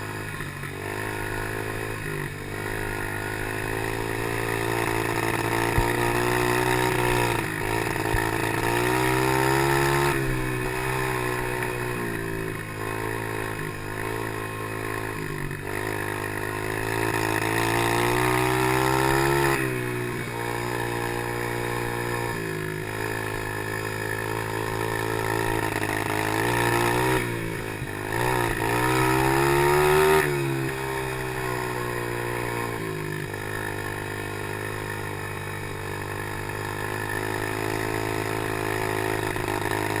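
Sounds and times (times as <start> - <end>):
pit bike engine revving: 0.0 - 40.0.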